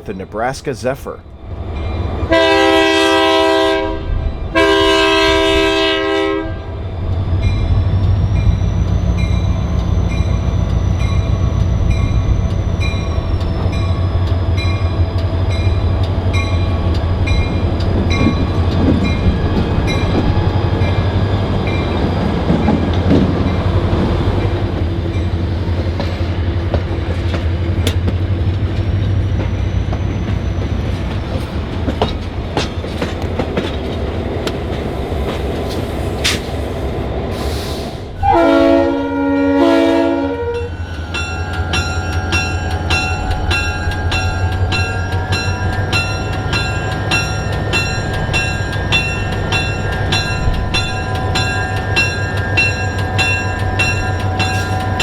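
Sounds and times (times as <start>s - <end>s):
train horn blast: 2.3s - 6.8s, 38.2s - 41.0s
wheels clicking over rail joints: 24.8s - 36.5s, 40.9s - 55.0s.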